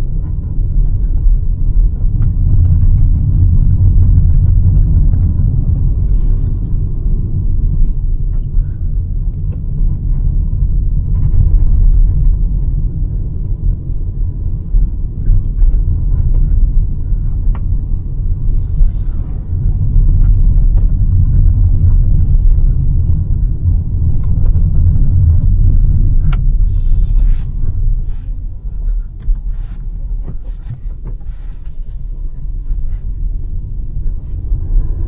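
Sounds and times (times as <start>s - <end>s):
car road and engine rumble: 0.0s - 35.0s.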